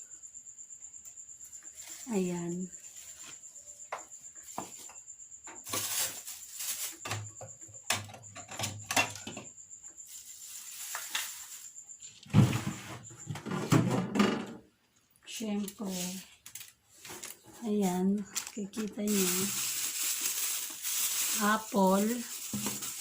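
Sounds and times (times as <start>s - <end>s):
plastic bags rustling: 5.6s - 7.2s, 10.1s - 11.7s, 15.8s - 23.0s
plastic crinkling and bumping: 5.6s - 9.4s, 18.2s - 23.0s.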